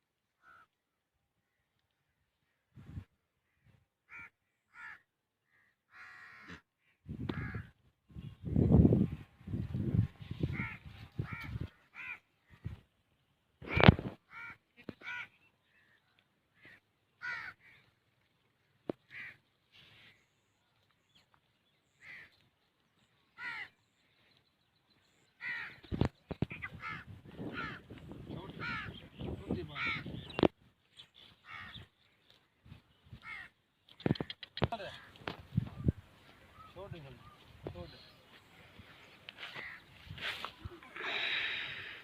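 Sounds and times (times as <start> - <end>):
crows cawing: 0.4 - 0.7, 3.5 - 7.7, 10.4 - 12.7, 13.6 - 18.0, 19.0 - 20.2, 21.9 - 22.4, 23.4 - 23.8, 25.4 - 29.0, 29.7 - 30.1, 31.4 - 31.9, 33.2 - 33.6, 34.8 - 35.4, 39.4 - 39.9.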